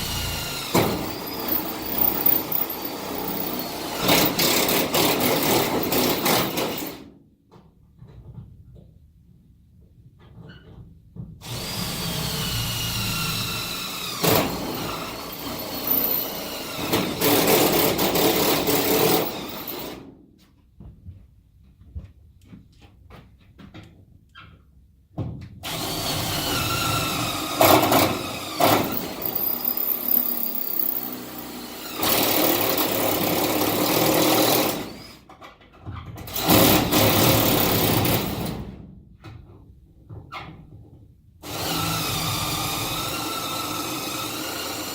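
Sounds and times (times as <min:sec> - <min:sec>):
cordless drill whining: 0:00.0 - 0:07.0, 0:11.4 - 0:20.0, 0:25.6 - 0:35.3, 0:41.4 - 0:44.9.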